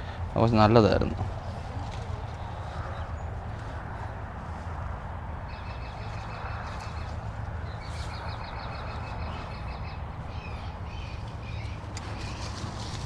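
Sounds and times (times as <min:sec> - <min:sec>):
steady low rumble: 0:00.0 - 0:13.0
bird trilling: 0:05.4 - 0:12.7.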